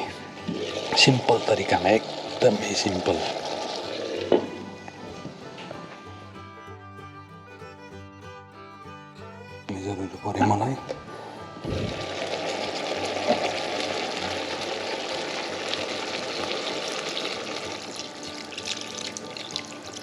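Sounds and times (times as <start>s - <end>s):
water running from a tap: 0.0s - 4.8s, 11.6s - 20.0s.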